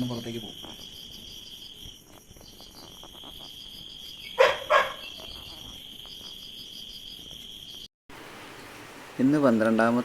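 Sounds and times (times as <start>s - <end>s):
insects chirring: 0.0s - 7.9s.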